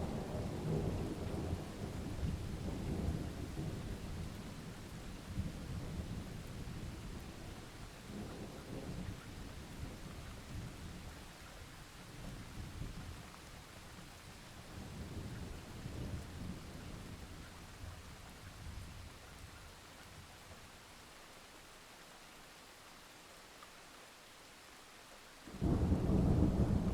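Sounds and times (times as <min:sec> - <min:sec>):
steady rain: 0:00.0 - 0:26.9
low thunder rumbling: 0:25.5 - 0:26.9.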